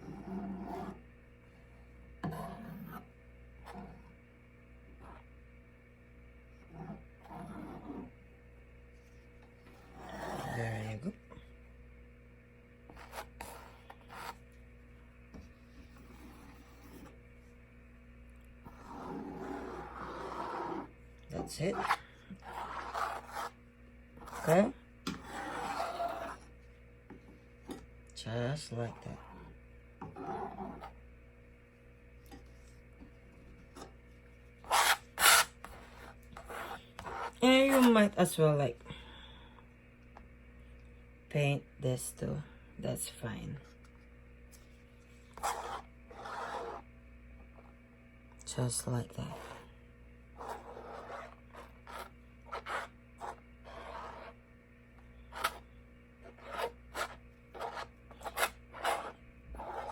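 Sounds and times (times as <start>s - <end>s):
paintbrush scrubbing paint: 21.7s - 23.6s, 34.6s - 37.4s, 45.2s - 46.9s, 50.4s - 54.4s, 55.3s - 59.9s.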